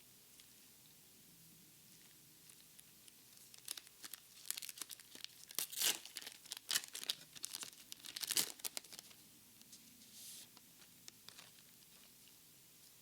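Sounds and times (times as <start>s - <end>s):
foil wrapper crinkling and tearing: 2.4s - 9.2s, 11.2s - 12.1s.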